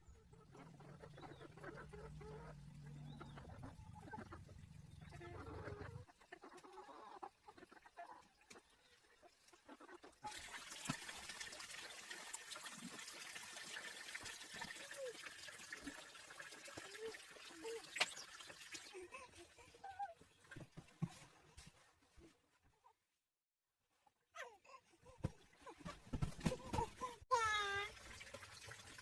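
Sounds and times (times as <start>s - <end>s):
running water hiss: 10.2s - 19.0s.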